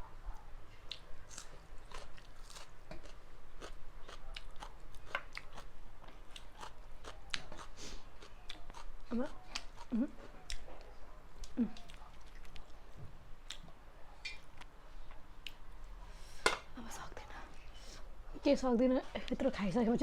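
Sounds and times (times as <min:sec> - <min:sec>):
chewing crunches: 0:00.9 - 0:09.9.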